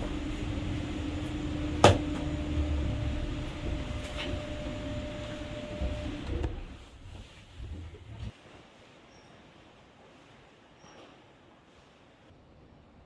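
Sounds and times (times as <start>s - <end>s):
funicular car humming: 0.0s - 8.3s
sharp clunk: 1.8s - 2.4s.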